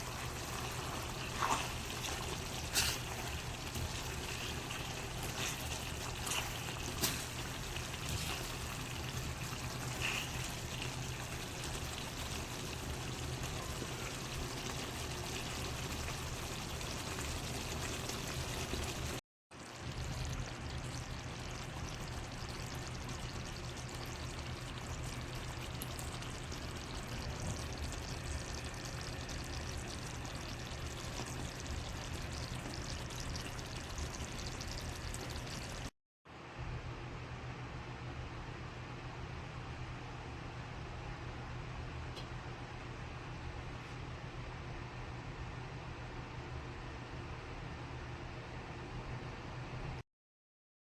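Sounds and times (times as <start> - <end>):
curry bubbling in a pan: 0.0 - 35.9.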